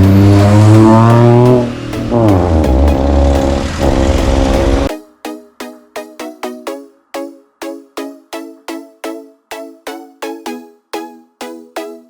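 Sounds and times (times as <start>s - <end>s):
vehicle engine revving: 0.0s - 4.9s
short music notes: 0.0s - 12.0s.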